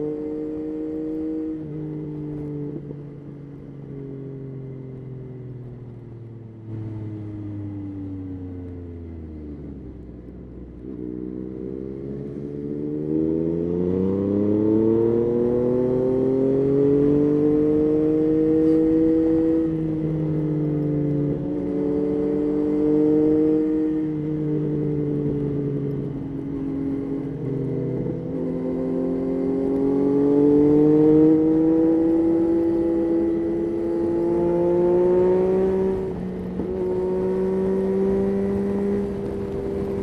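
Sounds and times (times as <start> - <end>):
motorcycle engine revving: 10.9 - 20.5, 21.1 - 40.0.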